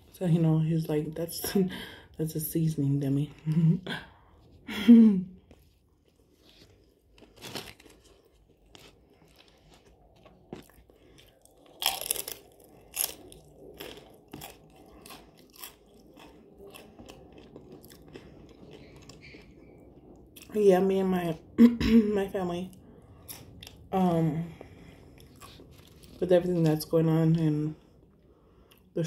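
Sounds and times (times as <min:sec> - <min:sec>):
wet chewing and smacks: 0:05.4 - 0:20.5
loud crunches: 0:06.3 - 0:19.4.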